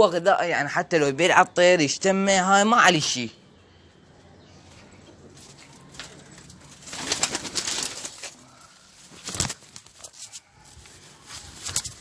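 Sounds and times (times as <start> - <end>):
rustling: 4.8 - 12.0.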